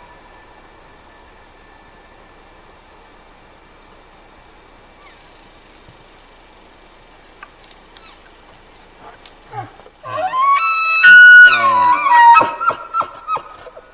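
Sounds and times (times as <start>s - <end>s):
elk bugling: 8.0s - 13.9s.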